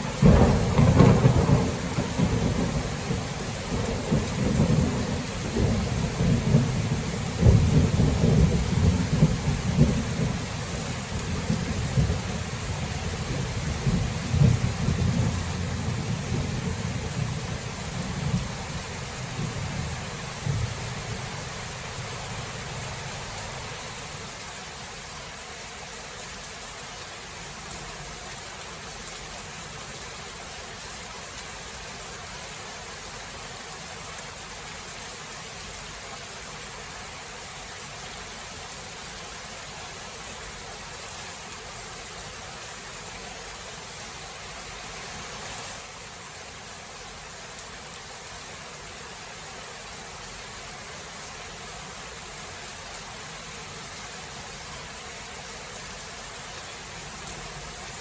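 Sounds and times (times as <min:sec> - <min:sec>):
low thunder rumble: 0:00.0 - 0:22.5
steady rain falling: 0:00.0 - 0:58.0.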